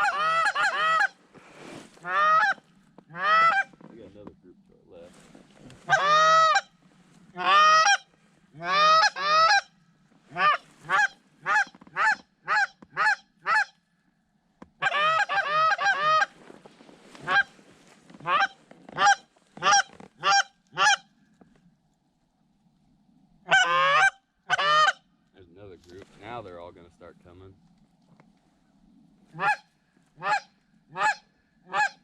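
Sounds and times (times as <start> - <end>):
goose honking: 0.0 - 1.2, 2.0 - 3.8, 5.8 - 6.7, 7.4 - 9.7, 10.3 - 13.8, 14.8 - 16.4, 17.2 - 17.5, 18.2 - 21.1, 23.5 - 25.1, 29.3 - 32.0.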